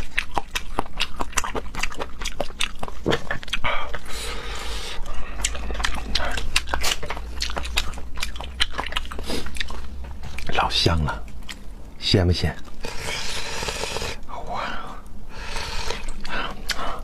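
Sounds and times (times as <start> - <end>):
wet chewing and mouth smacking: 0.0 - 4.2, 4.9 - 11.9, 12.5 - 14.2, 15.0 - 17.0.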